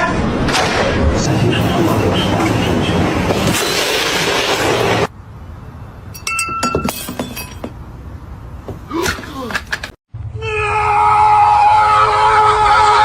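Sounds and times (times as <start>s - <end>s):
light ringing clinks: 6.1s - 7.7s.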